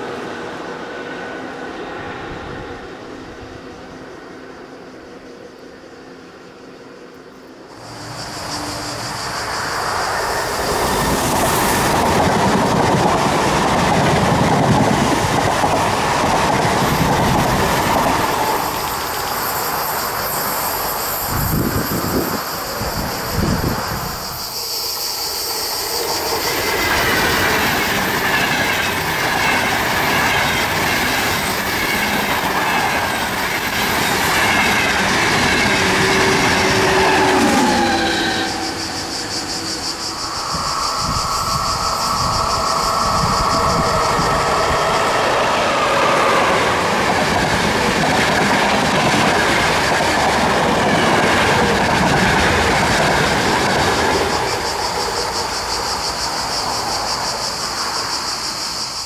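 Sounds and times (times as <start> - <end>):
train rail noise rushing: 0.0 - 59.0
high wheel squeal: 7.7 - 12.6, 16.9 - 50.2.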